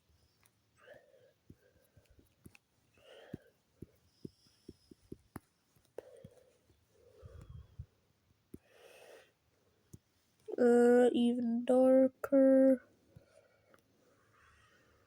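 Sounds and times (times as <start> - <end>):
soft breathing: 0.0 - 10.5, 13.0 - 15.0
stylus tapping on drawing tablet: 1.4 - 6.8.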